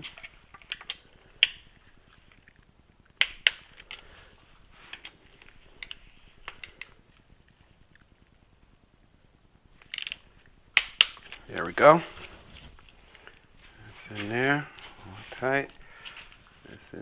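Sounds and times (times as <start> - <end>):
torque wrench clicking: 5.8 - 6.9, 9.8 - 10.2.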